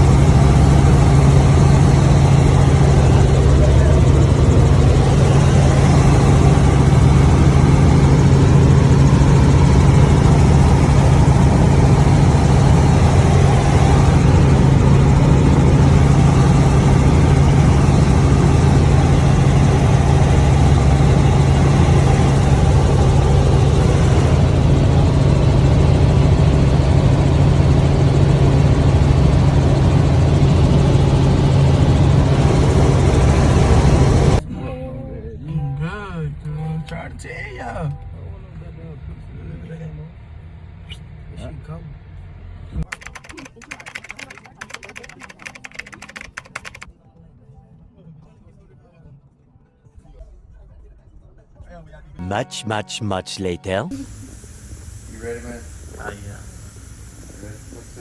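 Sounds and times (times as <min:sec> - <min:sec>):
vehicle engine droning: 0:00.0 - 0:42.9.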